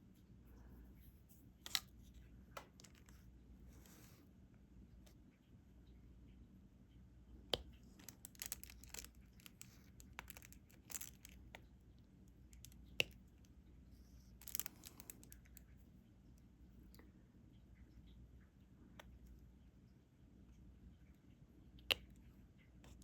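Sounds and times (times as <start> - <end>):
small plastic clicks: 7.6 - 11.6, 14.4 - 15.6
plastic crinkling: 7.8 - 11.5, 14.4 - 15.6.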